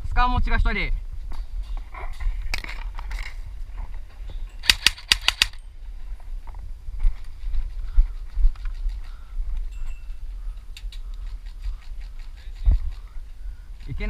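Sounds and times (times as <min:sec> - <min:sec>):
airsoft gun shots: 0:04.6 - 0:05.6.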